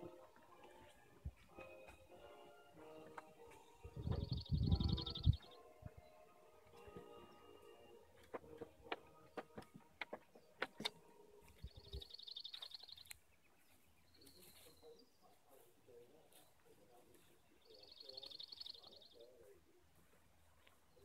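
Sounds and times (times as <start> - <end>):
high bird call: 3.8 - 6.2
songbird trilling: 3.9 - 6.1, 11.6 - 15.1, 17.6 - 19.3.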